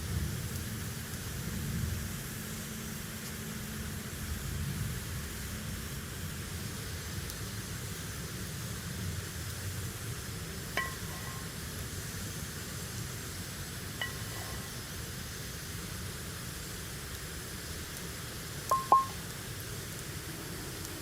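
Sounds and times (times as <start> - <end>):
glassware clinking: 10.8 - 11.4, 18.7 - 19.2.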